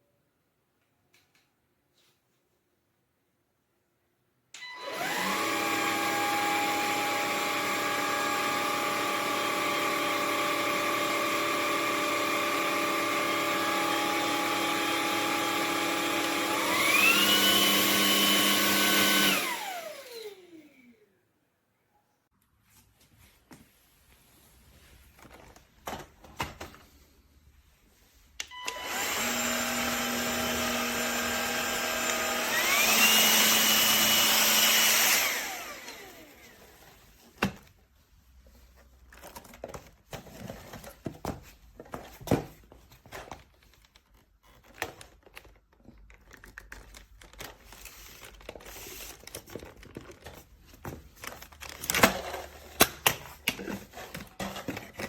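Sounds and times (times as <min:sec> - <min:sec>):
stick vacuum motor whine: 0:04.6 - 0:21.0, 0:28.4 - 0:36.7.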